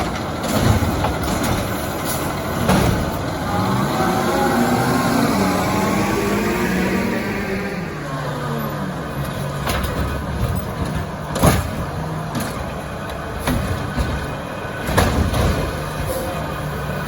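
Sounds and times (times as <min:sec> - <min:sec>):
sharp knocks and bangs: 0:00.0 - 0:03.4, 0:09.6 - 0:12.8, 0:13.4 - 0:16.1
garbage truck diesel engine: 0:00.0 - 0:17.0.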